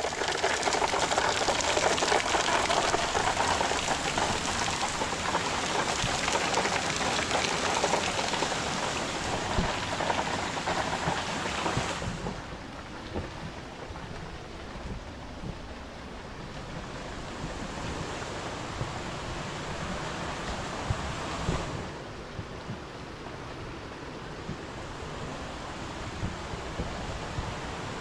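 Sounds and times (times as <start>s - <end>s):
high-pressure water spraying: 0.0s - 12.5s.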